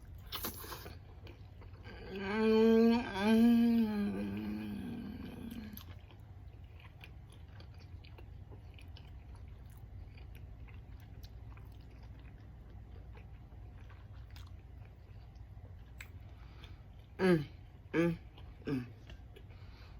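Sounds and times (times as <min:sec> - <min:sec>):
person chewing food: 0:00.0 - 0:02.3, 0:04.2 - 0:19.9
person humming: 0:02.0 - 0:05.8, 0:17.2 - 0:18.9.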